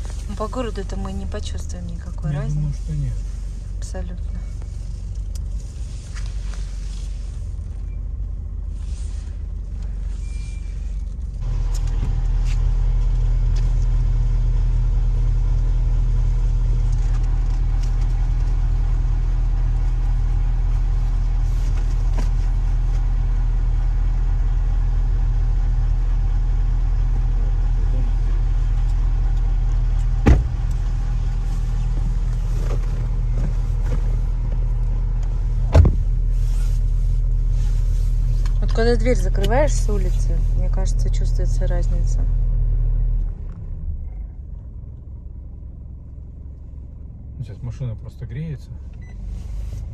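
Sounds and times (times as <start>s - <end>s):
car engine idling: 0.0s - 49.9s
short thumps: 30.0s - 34.6s, 35.2s - 36.4s.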